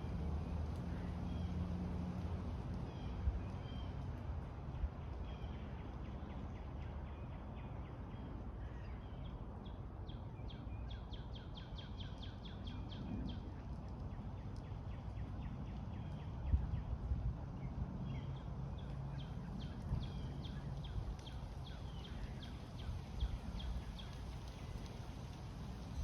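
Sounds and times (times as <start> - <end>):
low rumble of background noise: 0.0 - 26.0.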